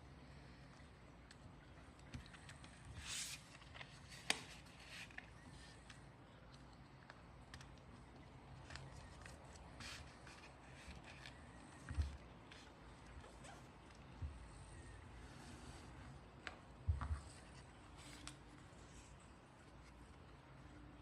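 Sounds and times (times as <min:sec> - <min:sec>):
paper rustling and creasing: 0:02.2 - 0:06.0, 0:07.5 - 0:14.1, 0:15.2 - 0:20.3.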